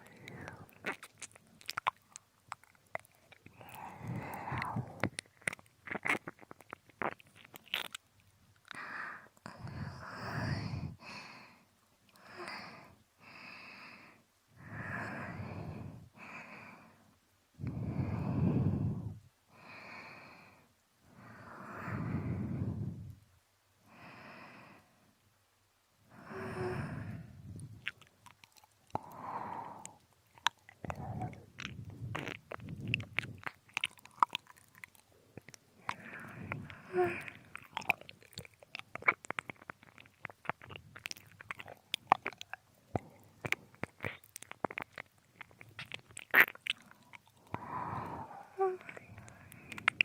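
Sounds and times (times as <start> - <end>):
wet mouth clicks and smacks: 0.0 - 8.8, 27.5 - 50.0
slow sighing breaths: 3.5 - 5.1, 8.8 - 23.2, 26.1 - 27.9, 28.9 - 30.1, 30.7 - 33.5, 35.8 - 37.9, 46.9 - 50.0.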